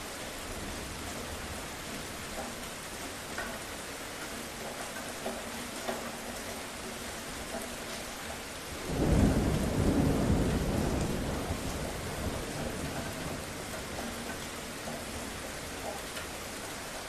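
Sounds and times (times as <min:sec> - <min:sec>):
steady rain: 0:00.0 - 0:17.0
low roll of thunder: 0:08.8 - 0:15.4.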